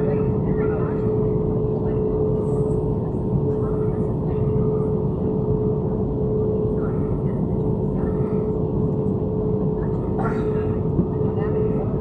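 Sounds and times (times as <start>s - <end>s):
airliner engine hum in cabin: 0.0s - 12.0s.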